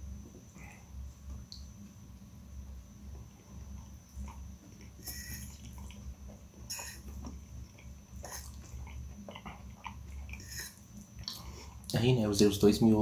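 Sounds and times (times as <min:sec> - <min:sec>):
close-up chewing noodles: 0:03.2 - 0:11.9.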